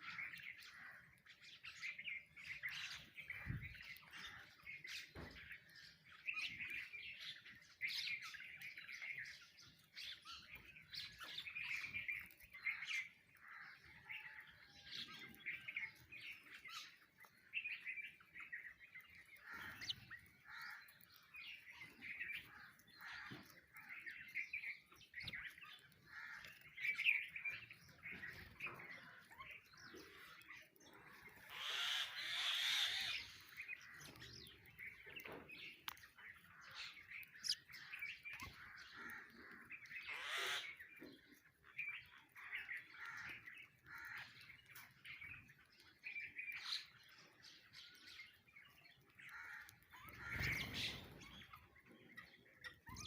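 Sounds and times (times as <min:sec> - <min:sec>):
birds squawking harshly: 0:00.0 - 0:01.9, 0:18.1 - 0:45.5, 0:46.4 - 0:53.0
sparrows chirping: 0:00.0 - 0:53.0.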